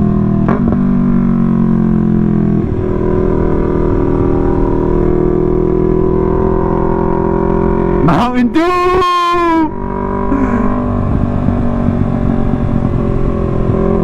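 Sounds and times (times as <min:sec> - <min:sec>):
motorcycle engine running: 0:00.0 - 0:14.0
wind rumble on microphone: 0:10.1 - 0:14.0.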